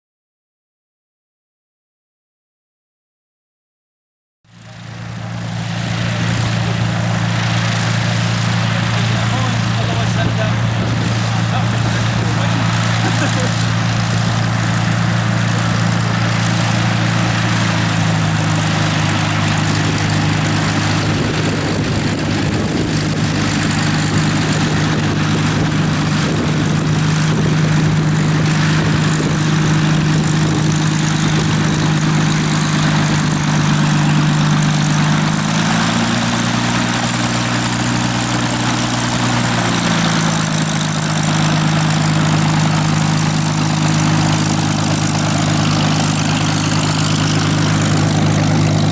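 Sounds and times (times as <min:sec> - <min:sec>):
piston aero engine running: 0:04.5 - 0:48.9.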